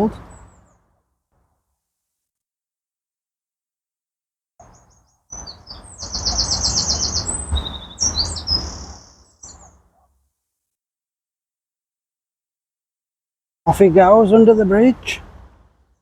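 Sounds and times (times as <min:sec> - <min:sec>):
songbird chirping and trilling: 0:04.6 - 0:10.0.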